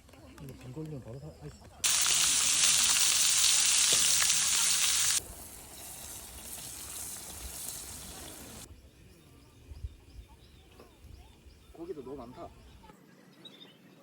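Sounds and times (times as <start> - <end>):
meat sizzling: 1.8 - 8.7.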